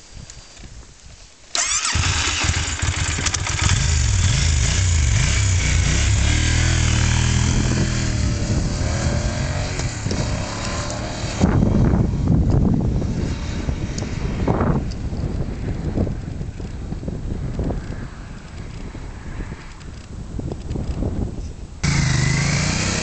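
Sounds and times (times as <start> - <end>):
motorcycle engine revving: 1.6 - 12.2, 21.8 - 23.0.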